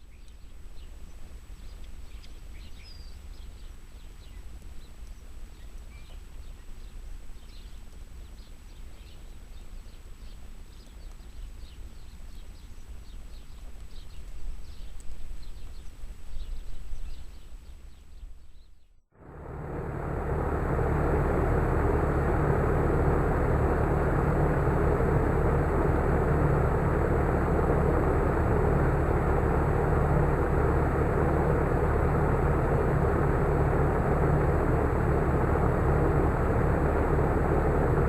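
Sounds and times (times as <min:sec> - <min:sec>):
small birds chirping: 0:00.0 - 0:19.0
low outdoor rumble: 0:19.2 - 0:38.0.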